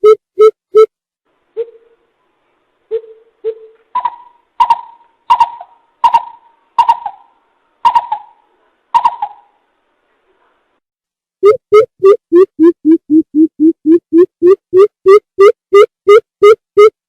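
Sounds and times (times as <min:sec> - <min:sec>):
coucal hooting: 0:02.9 - 0:09.6.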